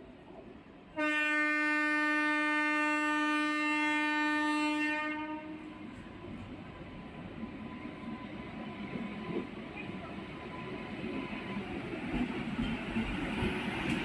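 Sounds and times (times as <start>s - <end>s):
train rumbling: 0.0s - 14.0s
train horn blast: 1.0s - 5.7s.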